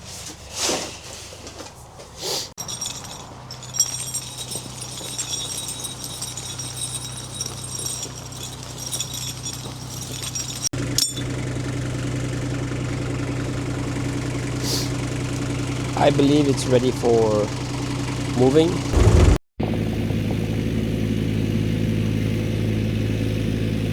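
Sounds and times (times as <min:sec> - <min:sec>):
handling noises: 0:00.0 - 0:11.5
heavy machine engine idling: 0:02.6 - 0:23.4.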